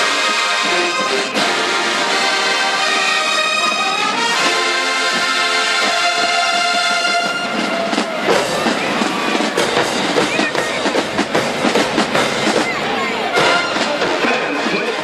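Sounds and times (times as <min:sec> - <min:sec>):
brass section playing chords: 0:00.0 - 0:09.1, 0:13.0 - 0:14.4.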